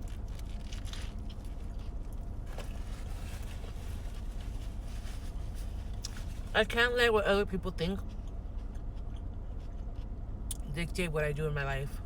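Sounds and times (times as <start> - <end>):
rustles: 0.0 - 6.6
low rumble inside car: 0.0 - 12.0.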